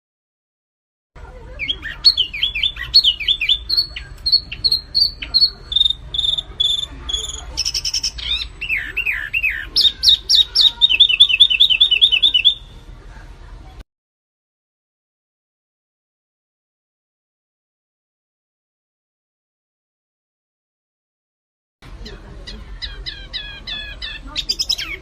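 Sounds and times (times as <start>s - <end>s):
songbird singing: 1.2s - 12.8s, 21.9s - 25.0s.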